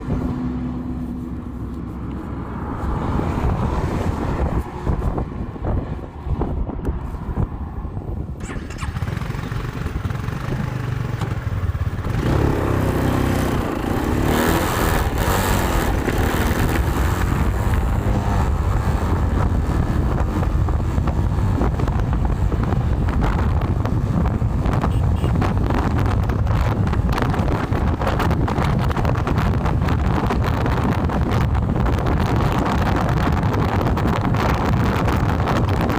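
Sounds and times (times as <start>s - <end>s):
strong wind buffeting microphone: 0.0s - 35.9s.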